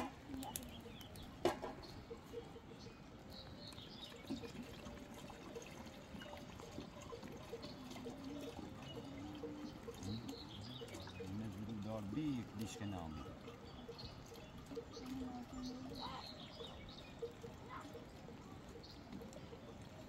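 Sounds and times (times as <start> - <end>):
liquid pouring and trickling: 0.0 - 20.0.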